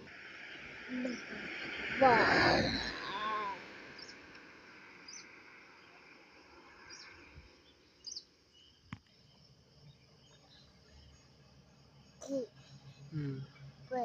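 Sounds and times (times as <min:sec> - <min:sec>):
faint bird chirps: 0:00.0 - 0:04.3, 0:04.9 - 0:14.0.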